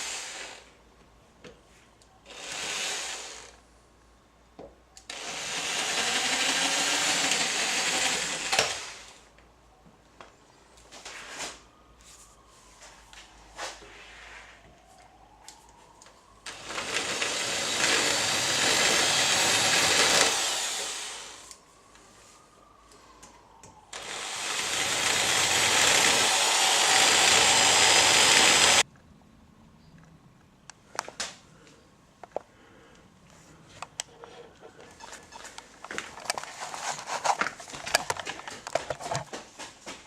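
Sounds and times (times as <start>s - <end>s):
angle grinder grinding metal: 17.4s - 21.5s, 24.0s - 28.8s.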